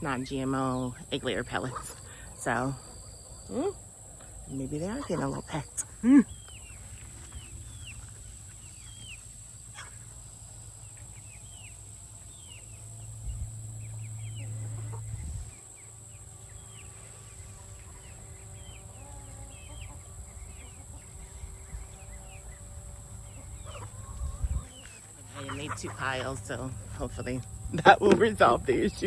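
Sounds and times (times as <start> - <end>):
chickens peeping: 0.1 - 29.0.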